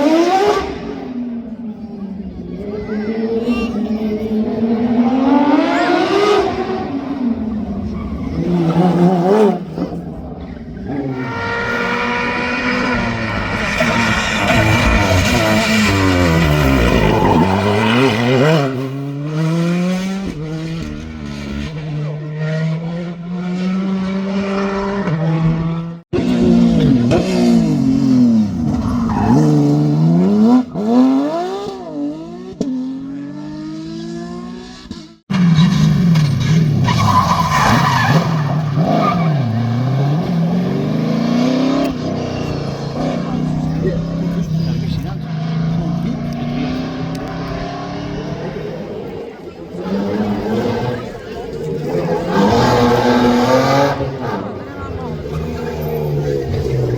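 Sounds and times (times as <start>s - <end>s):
rally cars revving hard: 0.0s - 56.9s.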